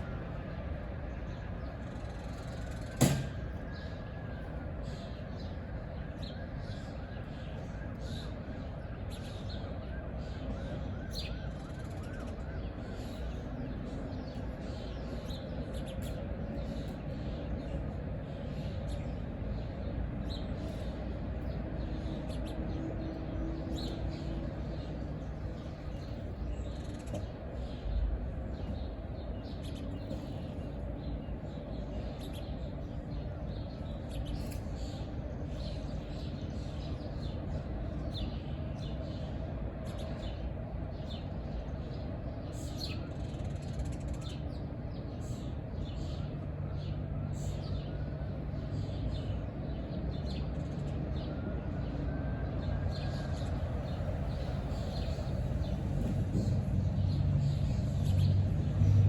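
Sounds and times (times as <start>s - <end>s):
birds chirping: 1.2s - 58.8s
steady low rumble: 52.6s - 59.0s.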